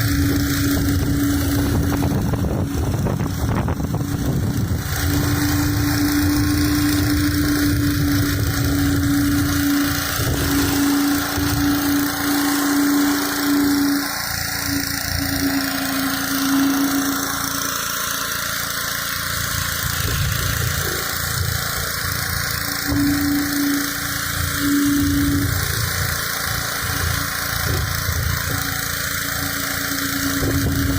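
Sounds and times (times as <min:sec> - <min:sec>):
pressure washer engine running: 0:00.0 - 0:30.9
water jet hissing on concrete: 0:00.0 - 0:30.9.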